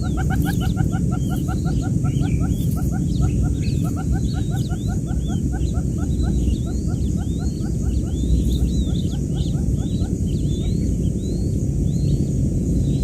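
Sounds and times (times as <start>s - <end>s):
chicks peeping: 0.0s - 12.3s
steady low hum: 0.0s - 13.0s.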